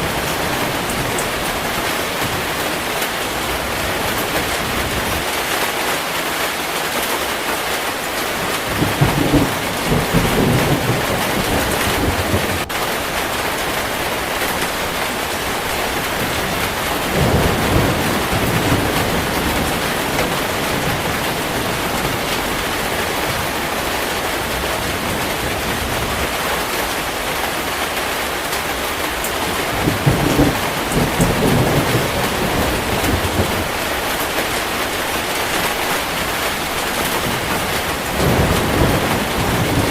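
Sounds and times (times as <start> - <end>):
heavy rain: 0.0 - 39.9
thunder rumbling: 8.3 - 26.7, 29.0 - 39.9.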